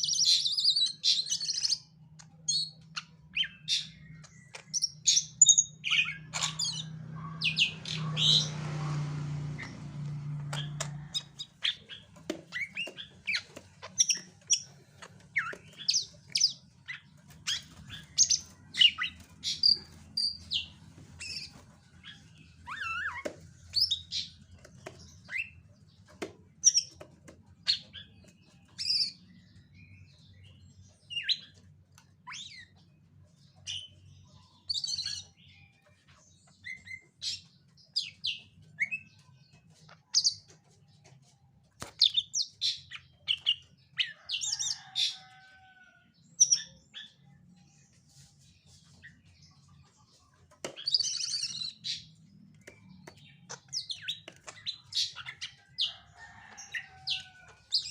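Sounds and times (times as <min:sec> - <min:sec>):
bird chirping and whistling: 0:22.6 - 0:24.3.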